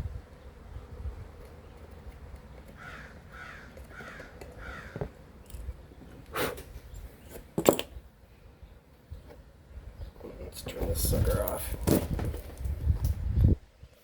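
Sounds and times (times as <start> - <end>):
bird calling: 2.6 - 5.2.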